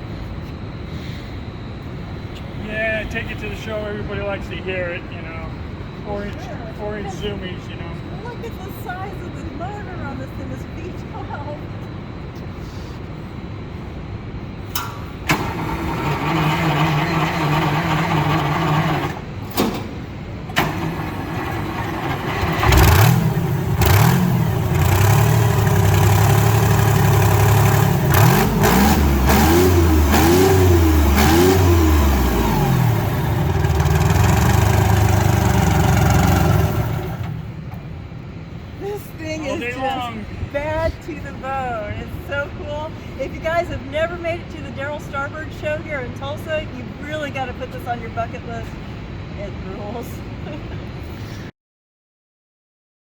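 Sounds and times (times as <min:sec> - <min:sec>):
diesel engine revving: 0:15.2 - 0:38.2.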